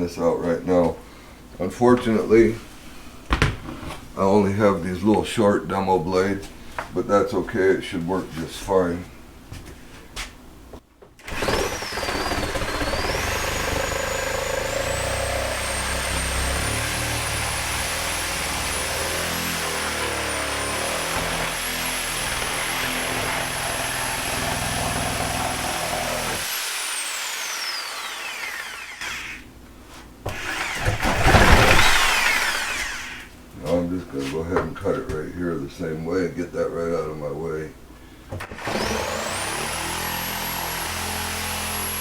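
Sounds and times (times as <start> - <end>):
reciprocating saw cutting wood: 11.2 - 29.4, 30.3 - 33.3, 38.4 - 42.0.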